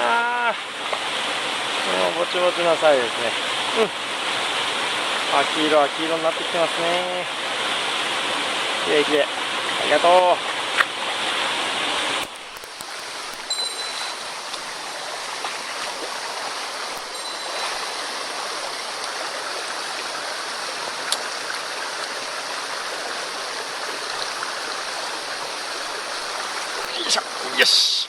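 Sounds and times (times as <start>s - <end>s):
stream water rushing: 0.0s - 28.0s
faint ticks: 12.2s - 14.8s.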